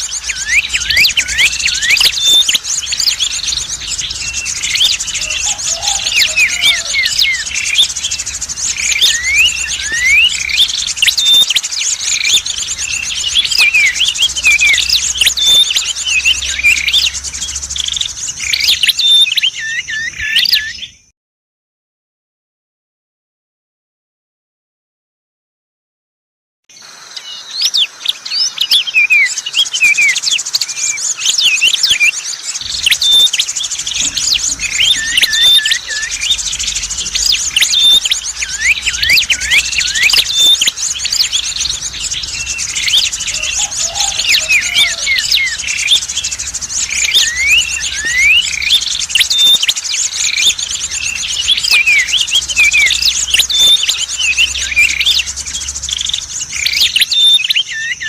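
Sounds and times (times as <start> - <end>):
small songbirds chirping: 0.0 - 21.1, 26.7 - 58.0
faint low hum: 32.6 - 57.0.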